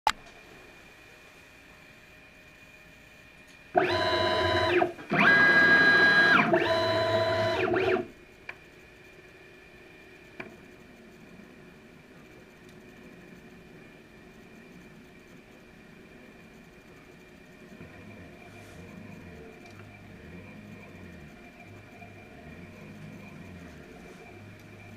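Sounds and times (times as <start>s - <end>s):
stepper motors whining: 3.8s - 8.1s.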